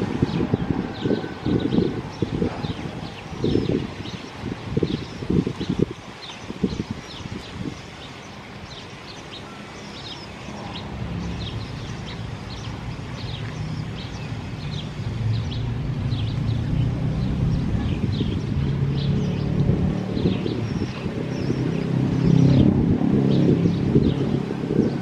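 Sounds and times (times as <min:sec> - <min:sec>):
small birds chirping: 0:00.0 - 0:25.0
low engine hum: 0:09.5 - 0:25.0.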